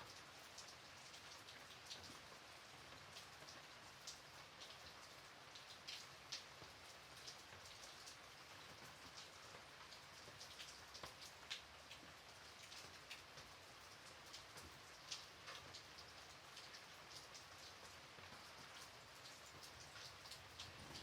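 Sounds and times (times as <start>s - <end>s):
gentle rain patter: 0.0s - 21.0s.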